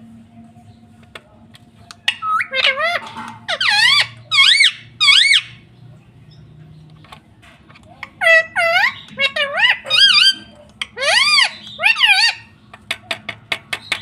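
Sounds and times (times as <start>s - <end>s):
parrot squawking: 2.0s - 5.6s, 8.2s - 12.5s.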